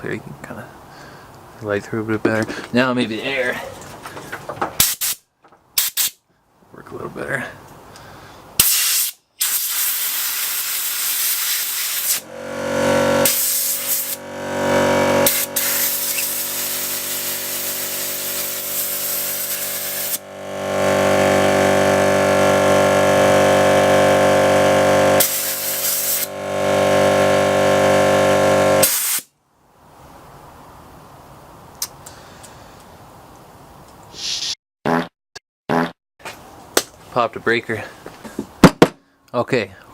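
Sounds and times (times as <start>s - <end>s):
compressed air hissing bursts: 4.8s - 5.2s, 5.8s - 6.2s, 8.6s - 12.2s, 13.2s - 20.2s, 25.2s - 26.3s, 28.8s - 29.3s
air compressor motor humming: 11.2s - 28.8s.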